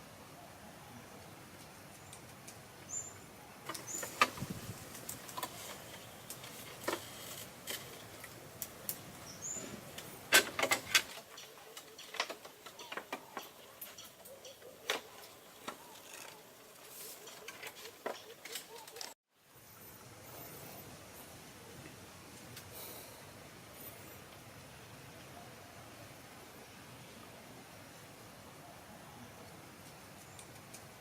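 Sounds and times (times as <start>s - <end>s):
light clicks and knocks: 9.8s - 16.5s.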